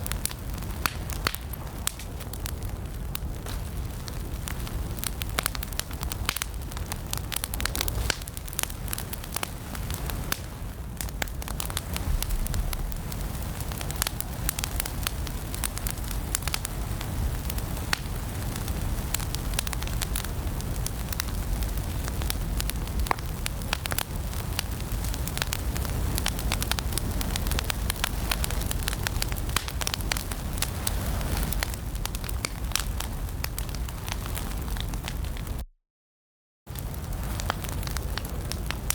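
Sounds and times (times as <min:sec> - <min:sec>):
fire crackling in a fireplace: 0:00.0 - 0:35.6, 0:36.7 - 0:38.9.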